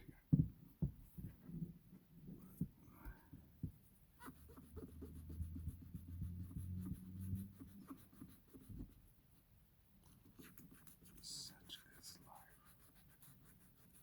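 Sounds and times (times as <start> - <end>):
scratchy rubbing on shoe: 4.2 - 9.1, 10.2 - 14.0.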